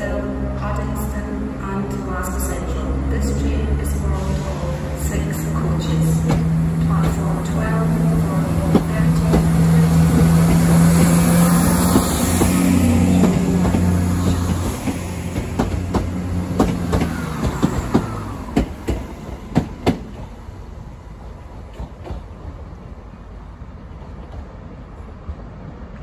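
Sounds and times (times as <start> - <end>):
diesel train engine drone: 0.0 - 26.0
train wheels clacking on rail joints: 8.4 - 20.4.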